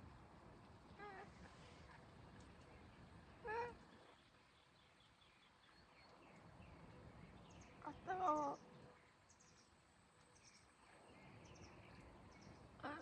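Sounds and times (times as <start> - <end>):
faint high bird chirps: 3.4 - 9.8.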